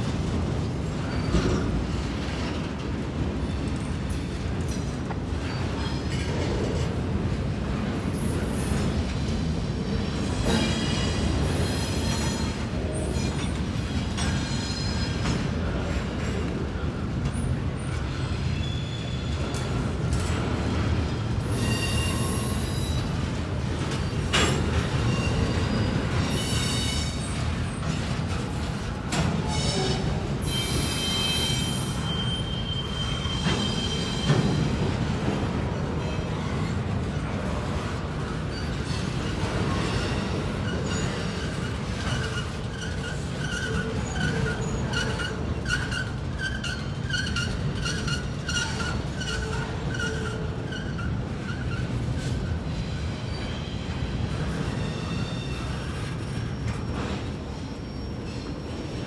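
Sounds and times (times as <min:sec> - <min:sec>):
train wheels rumbling on rail: 0:00.0 - 0:59.0
high-pitched wheel squeals: 0:21.5 - 0:23.0, 0:29.5 - 0:34.7, 0:53.3 - 0:58.8.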